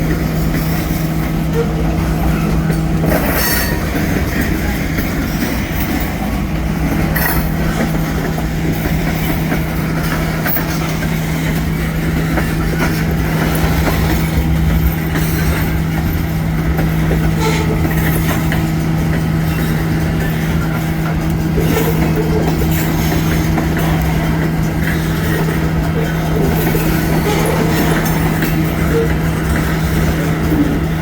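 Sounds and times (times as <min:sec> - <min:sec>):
diesel engine drone: 0:00.0 - 0:31.0
wheels rumbling on rail: 0:00.0 - 0:31.0.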